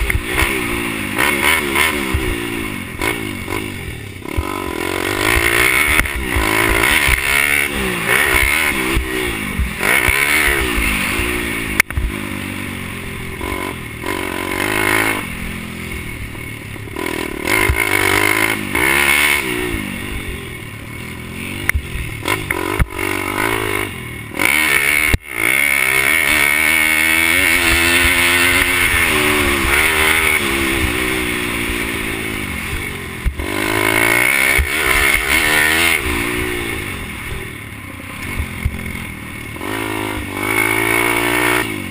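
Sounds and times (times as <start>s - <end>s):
motorbike engine revving: 0.0s - 41.9s.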